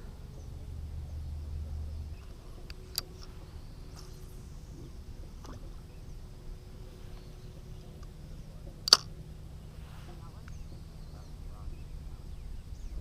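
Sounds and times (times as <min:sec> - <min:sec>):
faint steady hum: 0:00.0 - 0:13.0
sharp clicks: 0:08.8 - 0:09.1.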